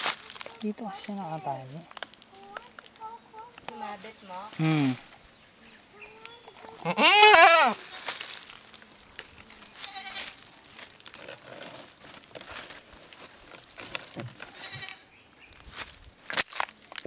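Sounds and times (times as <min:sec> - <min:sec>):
goat bleating: 0:06.7 - 0:08.1, 0:09.8 - 0:10.3, 0:14.5 - 0:15.1.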